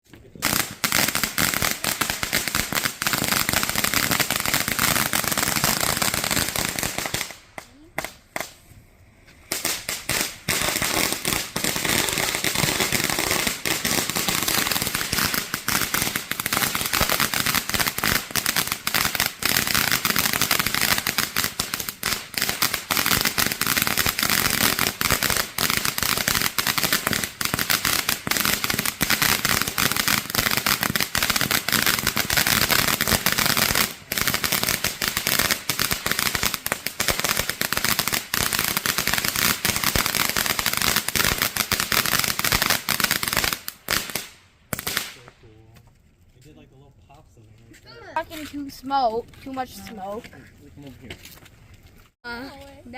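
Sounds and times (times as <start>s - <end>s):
fireworks crackling: 0.0s - 52.9s.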